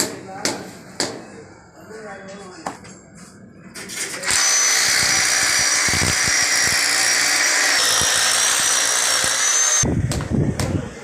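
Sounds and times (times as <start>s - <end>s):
electric drill whining: 4.3s - 9.8s.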